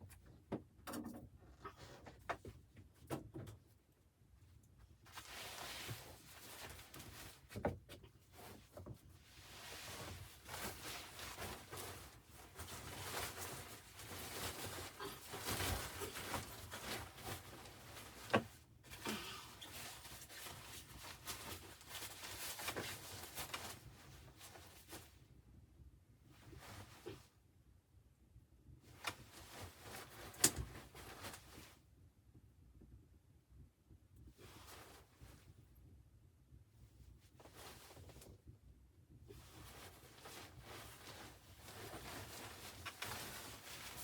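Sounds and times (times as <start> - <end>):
handling rustling: 8.4 - 25.1, 39.4 - 44.0.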